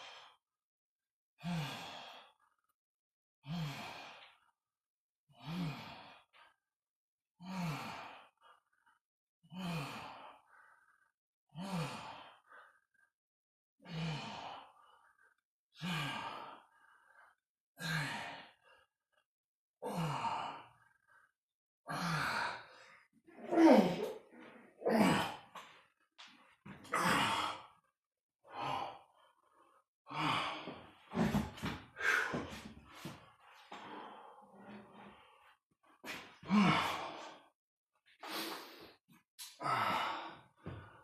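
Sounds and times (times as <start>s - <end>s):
man breathing out hard: 30.1s - 35.0s, 38.2s - 41.0s.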